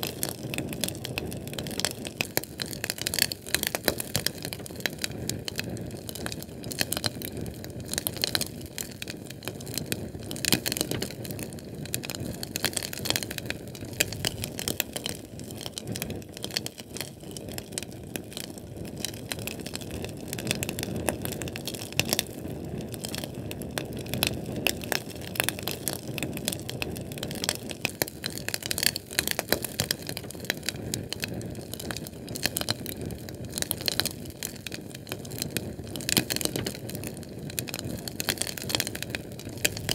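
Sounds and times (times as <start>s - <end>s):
fire crackling and popping: 0.0s - 39.9s
low rumble of flame: 0.0s - 39.9s.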